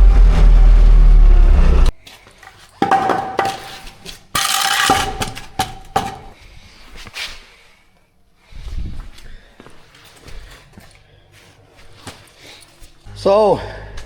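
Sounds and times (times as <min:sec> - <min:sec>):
engine running: 0:00.0 - 0:01.9.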